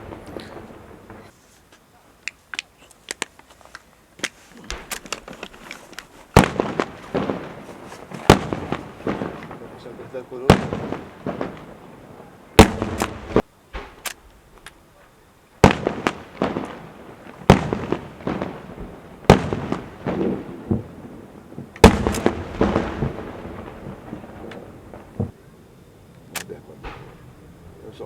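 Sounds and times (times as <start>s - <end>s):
echoing rumble: 0.0s - 1.3s, 15.8s - 28.0s
fireworks bangs: 0.0s - 1.4s, 4.2s - 28.0s.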